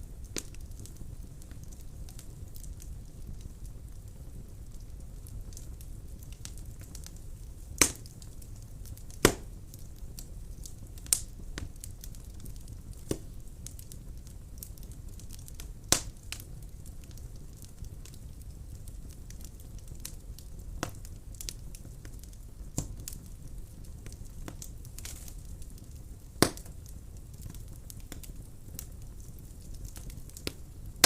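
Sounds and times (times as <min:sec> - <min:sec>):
fire rumbling and crackling: 0:00.0 - 0:31.0
logs popping: 0:07.8 - 0:08.2, 0:09.1 - 0:09.6, 0:13.0 - 0:13.4, 0:26.4 - 0:26.7.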